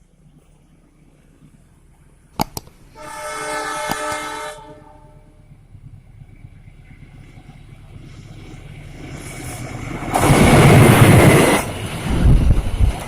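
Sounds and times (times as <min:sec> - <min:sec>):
approaching train rumble: 0:00.0 - 0:13.0
train horn blast: 0:03.0 - 0:05.4.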